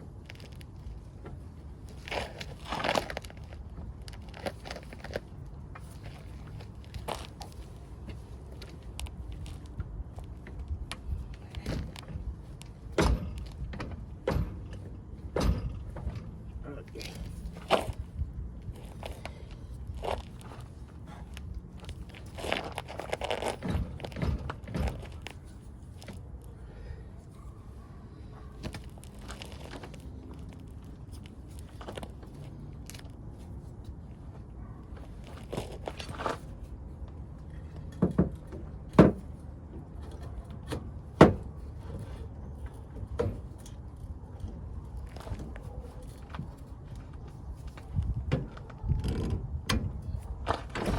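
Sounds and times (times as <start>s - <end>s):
tools knocking and clunking: 7.0s - 18.1s, 18.8s - 26.2s, 37.4s - 44.6s.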